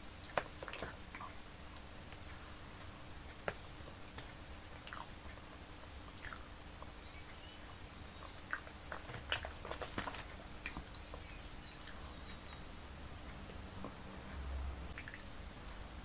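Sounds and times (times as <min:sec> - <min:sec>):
faint steady hum: 0:00.0 - 0:16.0
person chewing wet mouth clicks: 0:06.1 - 0:06.5.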